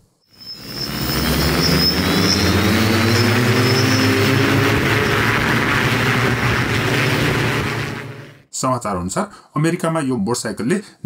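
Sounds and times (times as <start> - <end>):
hoverbike propellers droning: 0.4 - 8.4.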